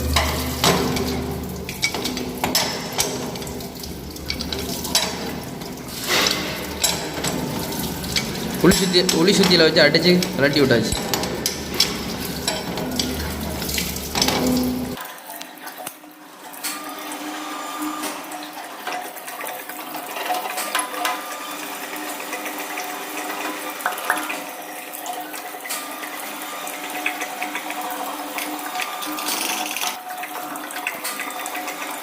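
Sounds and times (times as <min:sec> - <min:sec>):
water draining from tank: 0:00.0 - 0:32.0.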